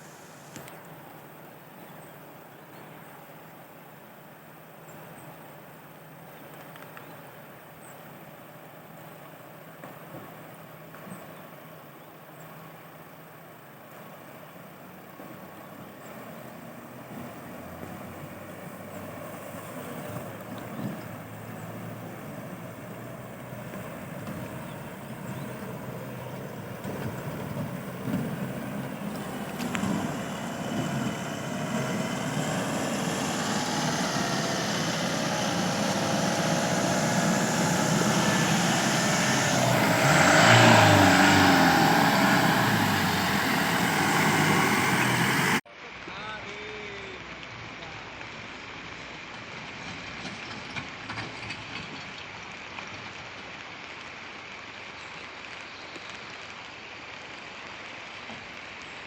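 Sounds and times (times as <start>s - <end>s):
diesel engine approaching: 12.6s - 46.0s.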